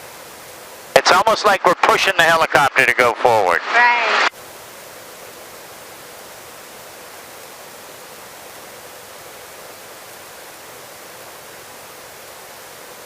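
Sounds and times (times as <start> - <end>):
helicopter cabin hiss: 0.9 - 4.3.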